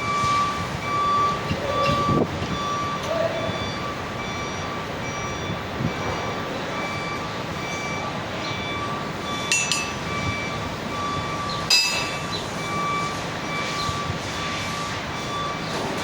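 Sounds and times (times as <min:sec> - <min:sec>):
workshop noise: 0:00.0 - 0:16.0
metal-on-metal clanks: 0:09.5 - 0:10.0, 0:11.7 - 0:12.2.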